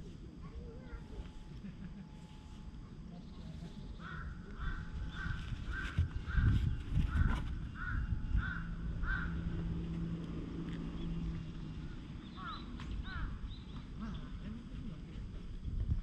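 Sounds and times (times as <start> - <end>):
bird calling: 3.2 - 9.7, 11.8 - 14.4.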